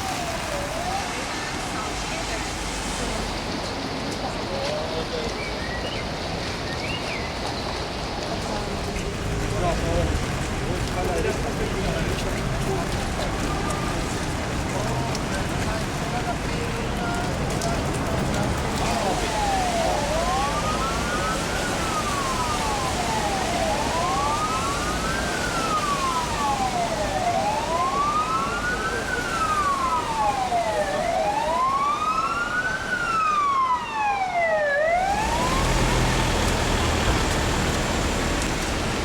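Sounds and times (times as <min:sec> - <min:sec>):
emergency vehicle siren wailing: 0:00.0 - 0:03.5, 0:17.0 - 0:39.0
rushing noise with low rumble: 0:07.9 - 0:27.8, 0:35.1 - 0:39.0.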